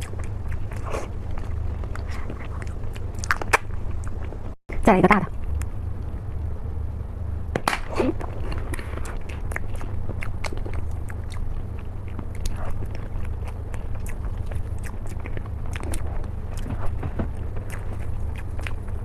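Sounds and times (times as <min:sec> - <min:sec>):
mouth chewing with clicks: 0:00.0 - 0:04.3, 0:08.5 - 0:19.0
steady low hum: 0:00.0 - 0:19.0.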